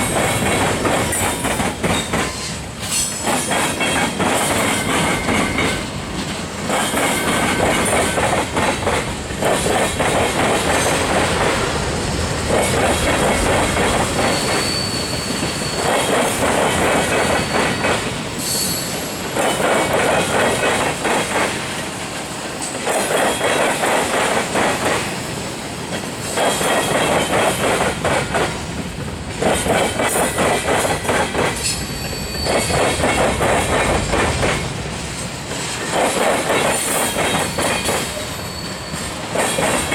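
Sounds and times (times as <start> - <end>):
train wheels clattering over rails: 0.0 - 39.9
thin wheel squeals: 14.2 - 16.2, 17.2 - 19.1, 31.7 - 32.9, 37.6 - 39.2.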